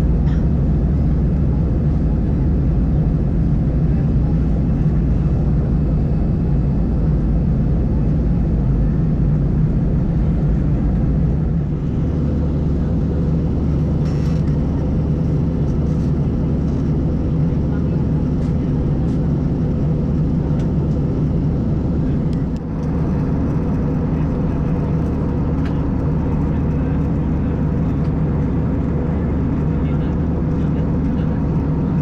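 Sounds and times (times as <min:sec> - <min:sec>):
airplane cabin engine drone: 0:00.0 - 0:32.0.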